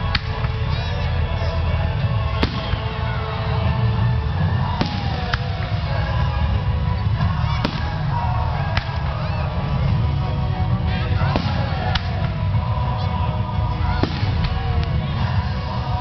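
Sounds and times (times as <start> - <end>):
fireworks booms rumbling: 0.0 - 10.0, 10.6 - 12.8, 13.6 - 16.0
fireworks sharp cracks: 2.2 - 9.1, 13.9 - 15.0.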